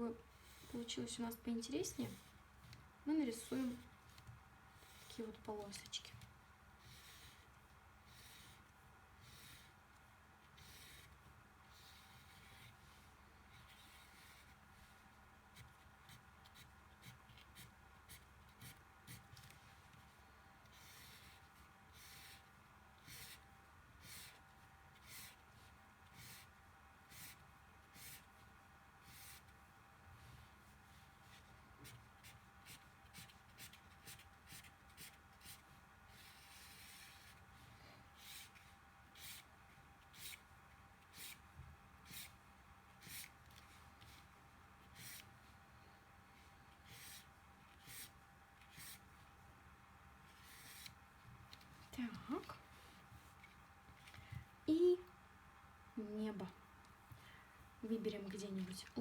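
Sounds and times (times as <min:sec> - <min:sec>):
drawing tool scratching cardboard: 0:44.8 - 0:45.3.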